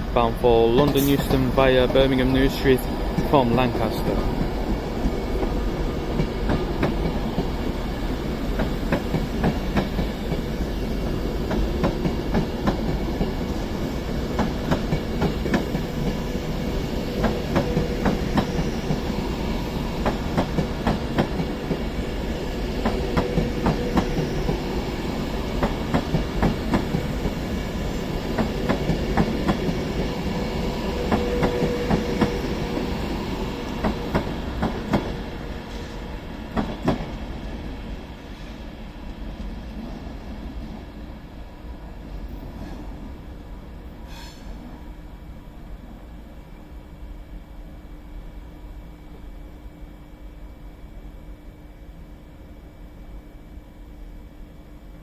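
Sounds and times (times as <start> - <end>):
train rolling rumble: 0.0 - 46.3
train wheels clicking over rail joints: 0.8 - 2.6, 8.5 - 13.4, 19.9 - 22.0, 22.8 - 24.7, 25.6 - 30.1.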